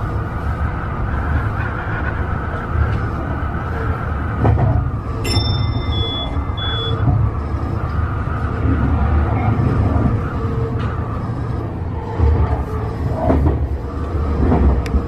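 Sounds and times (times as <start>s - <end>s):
train wheels rumbling on rail: 0.0s - 15.0s
high-pitched ringing tone: 5.2s - 7.1s.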